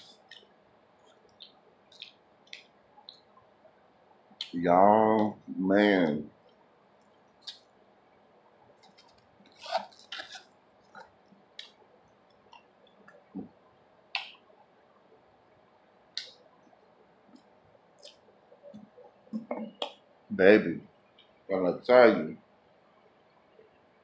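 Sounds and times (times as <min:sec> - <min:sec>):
man chewing food: 0:00.0 - 0:03.5
wet clicks and smacks: 0:01.3 - 0:03.3.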